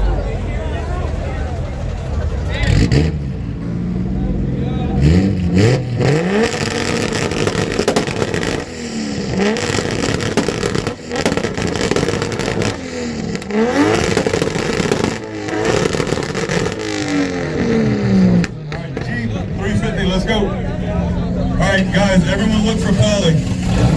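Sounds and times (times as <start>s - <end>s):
car engine revving: 0.0s - 23.9s.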